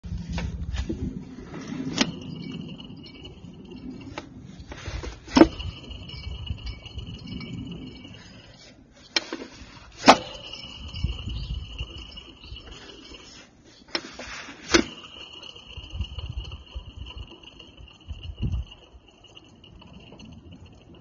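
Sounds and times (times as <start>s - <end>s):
low engine rumble: 0.0s - 13.7s
steady high whine: 0.0s - 21.0s
compressor jingling rattle: 0.2s - 21.0s.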